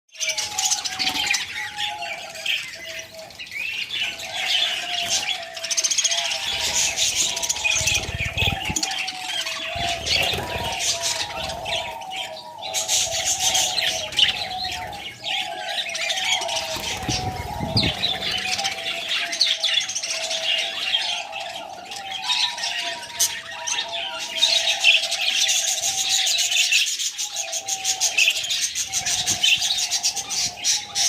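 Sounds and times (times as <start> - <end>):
cage birds chirping: 0.1 - 31.0.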